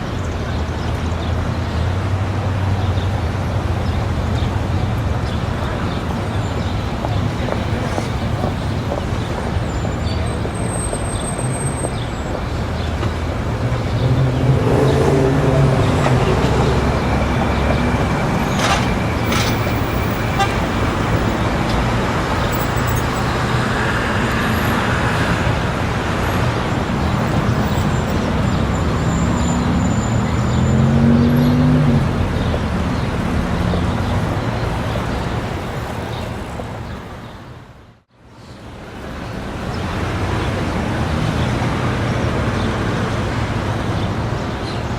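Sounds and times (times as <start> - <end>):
car engines passing: 0.0 - 38.0, 38.6 - 44.9
passing cars: 0.0 - 44.9
car horn: 20.1 - 21.3.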